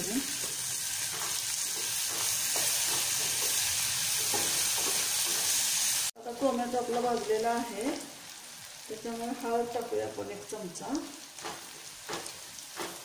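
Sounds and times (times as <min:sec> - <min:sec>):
stirring in a pan: 0:00.0 - 0:06.1, 0:11.0 - 0:13.0
vegetables sizzling in hot oil: 0:00.0 - 0:13.0.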